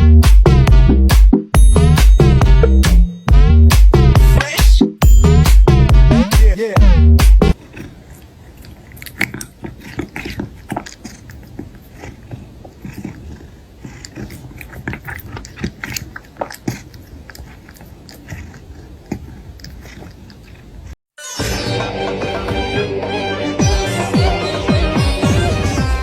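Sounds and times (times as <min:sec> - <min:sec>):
cat chewing food: 0:07.5 - 0:21.0
crunching clicks: 0:07.5 - 0:21.0.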